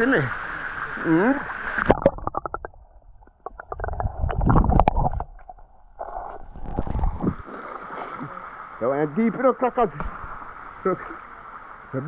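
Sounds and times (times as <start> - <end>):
waterfall water splashing on microphone: 0.0 - 2.7, 6.0 - 12.0.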